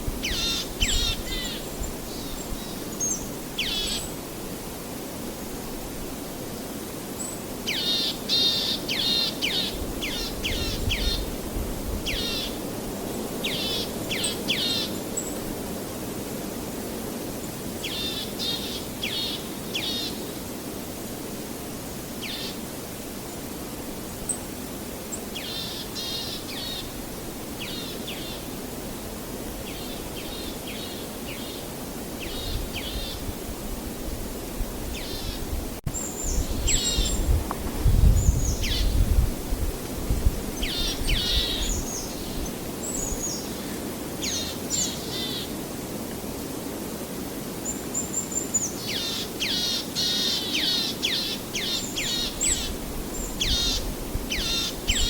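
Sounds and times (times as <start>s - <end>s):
small birds chirping: 34.9s - 39.0s, 40.5s - 45.5s, 47.6s - 55.0s.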